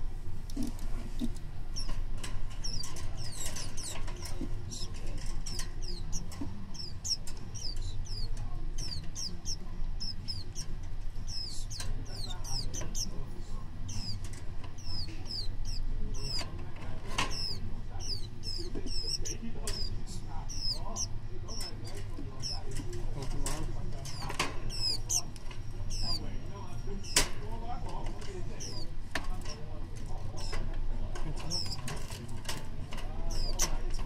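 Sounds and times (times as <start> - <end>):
small bird chirping: 0.5 - 27.4, 28.4 - 32.2, 33.0 - 34.0.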